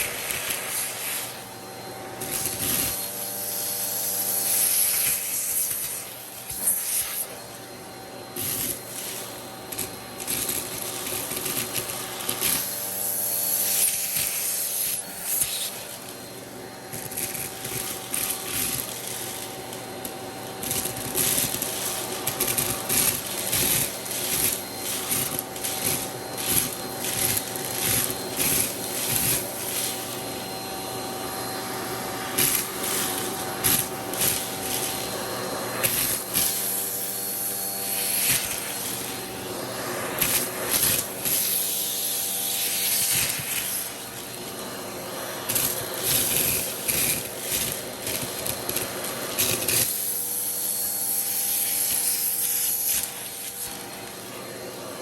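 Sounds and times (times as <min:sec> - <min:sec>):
vacuum cleaner motor hum: 0:00.0 - 0:55.0
hose tool scraping surface: 0:16.9 - 0:54.3.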